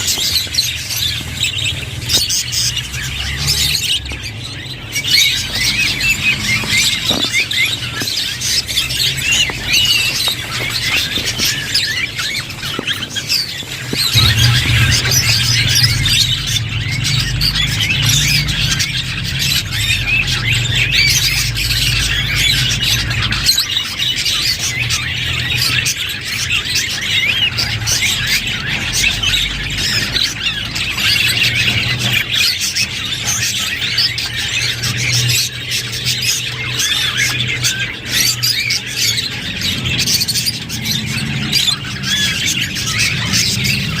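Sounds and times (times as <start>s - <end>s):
budgerigars chattering: 0.0s - 44.0s
low steady hum: 14.1s - 21.8s.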